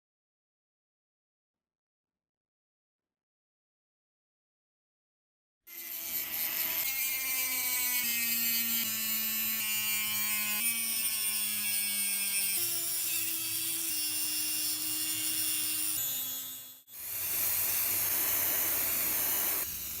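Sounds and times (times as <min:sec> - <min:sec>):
power tool motor whine: 0:15.2 - 0:20.0
hiss of abrasion: 0:17.0 - 0:20.0.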